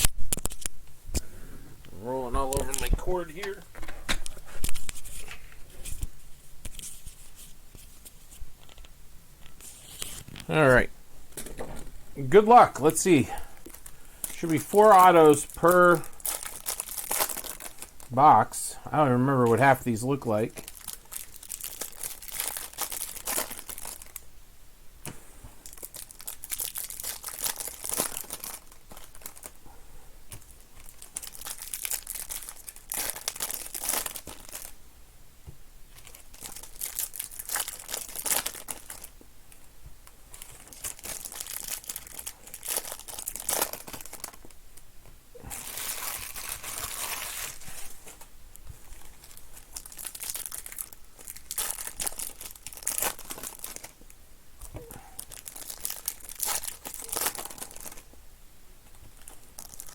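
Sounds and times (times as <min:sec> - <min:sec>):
card packs being torn open: 0:00.0 - 0:00.7, 0:02.4 - 0:03.6, 0:12.3 - 0:18.1, 0:19.5 - 0:24.2, 0:25.6 - 0:29.6, 0:30.3 - 0:34.7, 0:35.9 - 0:39.1, 0:40.4 - 0:44.5, 0:45.4 - 0:48.2, 0:48.9 - 0:54.0, 0:54.7 - 0:58.1, 0:59.1 - 0:59.9
wrappers crinkling: 0:02.3 - 0:06.1, 0:12.2 - 0:24.2, 0:25.6 - 0:29.6, 0:30.3 - 0:34.8, 0:35.9 - 0:44.6, 0:45.3 - 0:58.2, 0:58.8 - 0:59.9.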